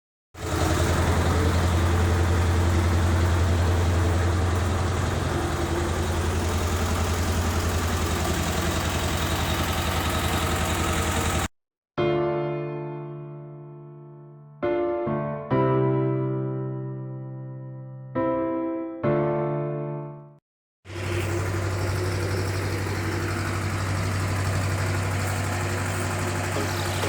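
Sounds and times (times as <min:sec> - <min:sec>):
tractor diesel engine running: 0:00.4 - 0:11.5, 0:20.9 - 0:27.0.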